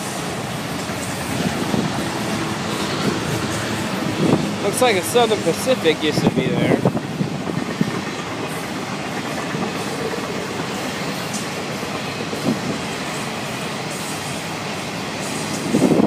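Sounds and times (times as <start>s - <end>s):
freight train wheels rumbling on rails: 0.0s - 16.0s.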